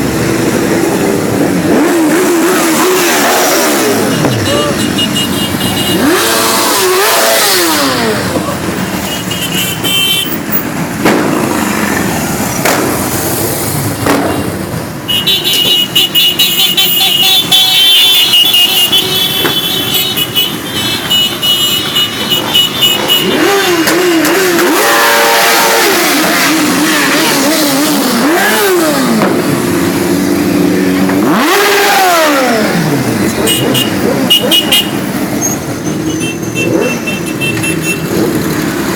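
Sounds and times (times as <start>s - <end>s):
high-pitched horn tooting: 3.8s - 7.6s, 15.1s - 26.3s, 33.2s - 38.2s.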